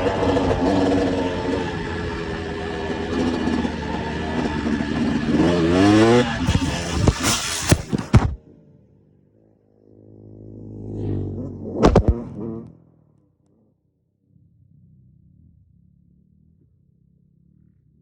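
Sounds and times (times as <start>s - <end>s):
motocross bike engine revving: 0.0s - 8.4s, 10.5s - 12.8s.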